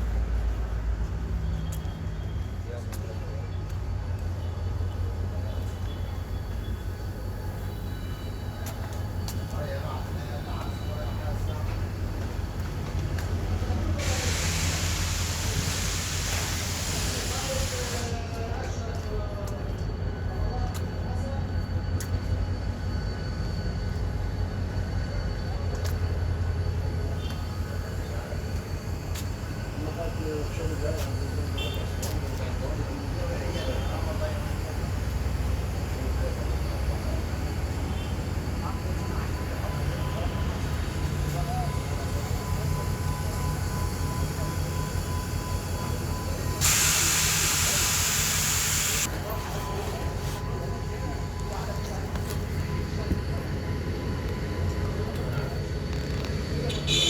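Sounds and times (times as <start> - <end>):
train rumbling: 0.0 - 56.7
loud steady hiss: 13.6 - 18.4, 27.3 - 49.4.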